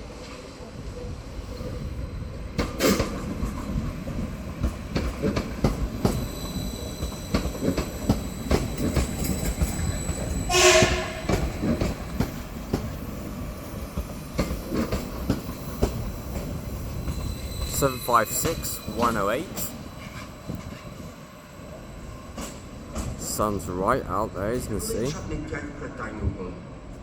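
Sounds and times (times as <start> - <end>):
train wheels knocking over rail joints: 7.0 - 13.0
train horn blast: 10.5 - 11.7.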